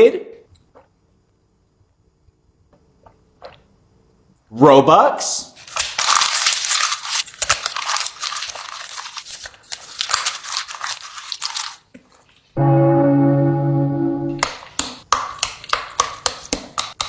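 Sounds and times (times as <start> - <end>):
buzzing electronic tone: 12.6 - 14.4.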